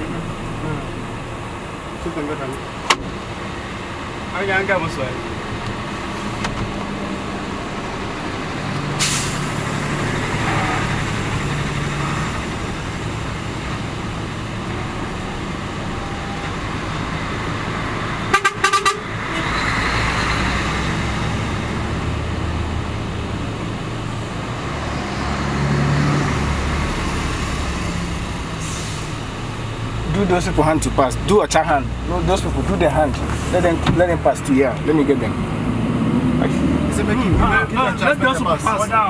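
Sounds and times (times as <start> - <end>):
road traffic engines: 0.0 - 39.0
short horn toots: 18.3 - 19.6.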